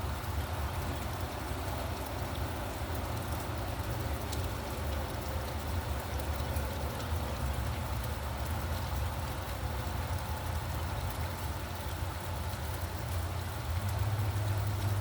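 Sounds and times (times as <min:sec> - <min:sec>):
rain falling: 0:00.0 - 0:15.0
raindrop ticks: 0:00.0 - 0:15.0.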